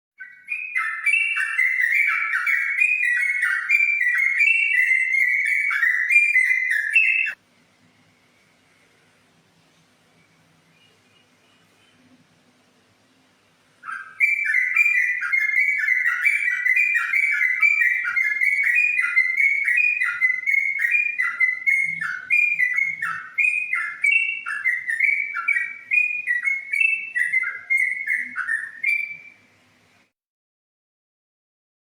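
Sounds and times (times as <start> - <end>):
bulbul singing whistled notes: 0.2 - 7.4, 13.8 - 29.5.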